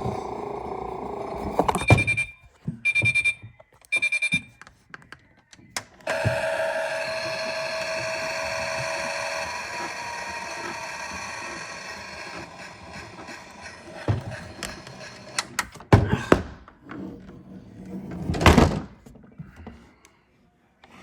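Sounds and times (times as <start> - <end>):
washing machine motor whine: 0.0 - 2.0, 6.0 - 15.6.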